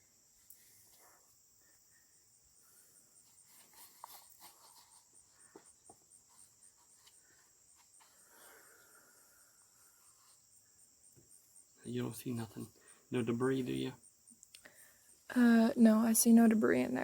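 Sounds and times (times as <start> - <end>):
crickets trilling: 0.0 - 17.0
faint clicks and rustles: 3.1 - 9.0.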